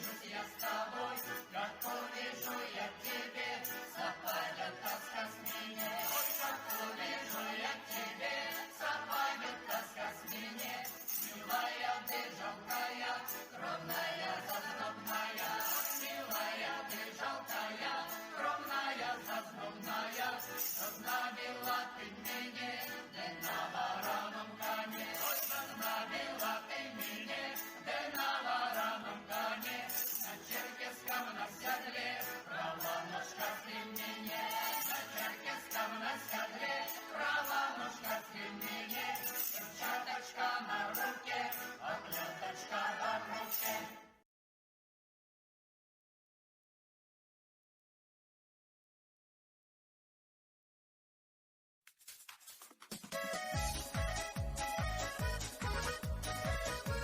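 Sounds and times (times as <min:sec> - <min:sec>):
percussion beats: 0:23.4 - 0:30.6, 0:51.9 - 0:57.0
folk ensemble playing dance tune: 0:52.9 - 0:57.0.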